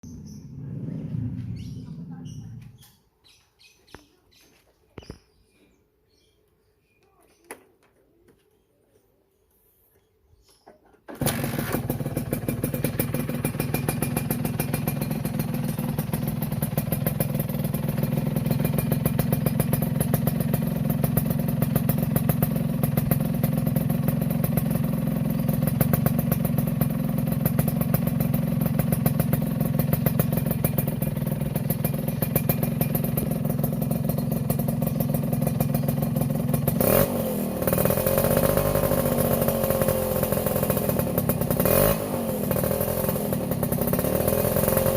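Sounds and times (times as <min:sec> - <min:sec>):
engine revving: 0:00.0 - 0:02.7, 0:11.1 - 0:23.2, 0:28.7 - 0:44.9
two-stroke motorcycle engine idling: 0:00.0 - 0:02.9, 0:11.1 - 0:44.9.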